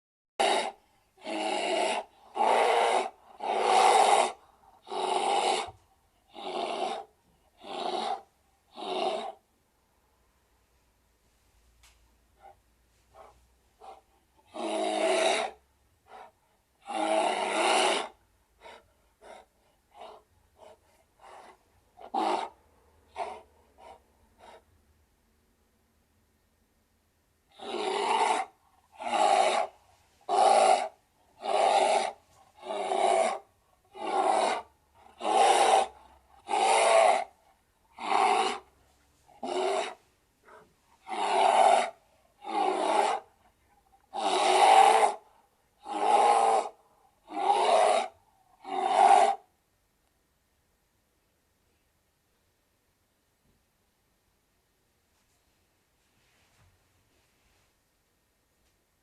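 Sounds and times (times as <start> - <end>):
bear growling: 0.4 - 9.4, 13.8 - 15.6, 16.8 - 24.6, 27.5 - 38.7, 39.4 - 43.3, 44.1 - 45.2.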